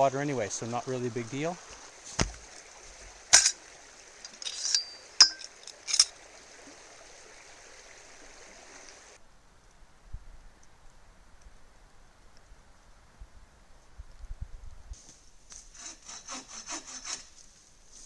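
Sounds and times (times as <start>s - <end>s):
river water running: 0.0s - 9.2s
clink: 4.4s - 6.1s.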